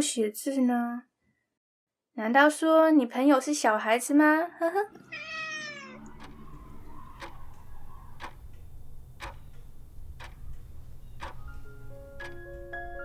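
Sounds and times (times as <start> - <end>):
clock ticking: 6.0 - 13.0.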